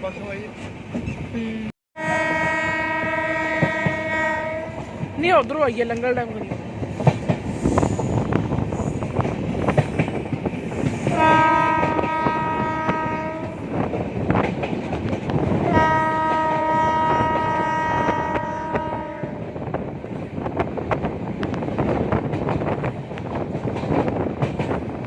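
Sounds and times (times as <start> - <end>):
train wheels clattering over rails: 0.4 - 1.4, 3.4 - 25.0
locomotive horn blasts: 2.0 - 4.8, 11.1 - 13.5, 15.7 - 19.4.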